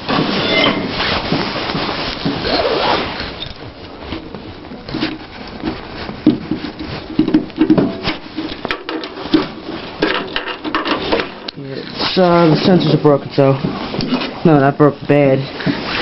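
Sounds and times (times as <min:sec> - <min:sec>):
rustling: 0:00.0 - 0:16.0
clicks and knocks of handling: 0:04.7 - 0:11.6.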